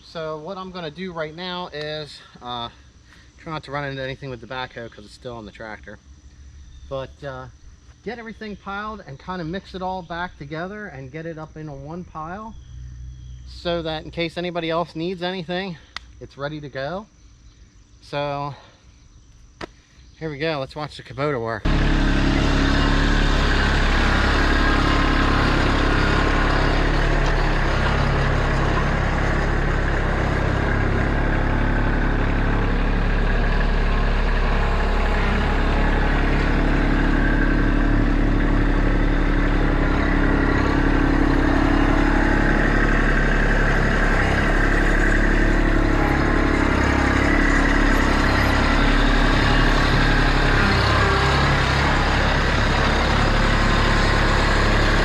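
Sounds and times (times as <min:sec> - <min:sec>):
tractor diesel engine working: 0:00.0 - 0:05.4, 0:21.2 - 0:55.0.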